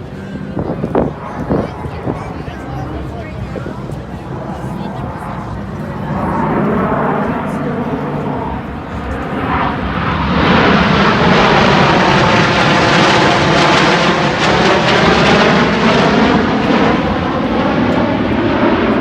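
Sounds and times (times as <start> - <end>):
jet roaring overhead: 0.0 - 19.0.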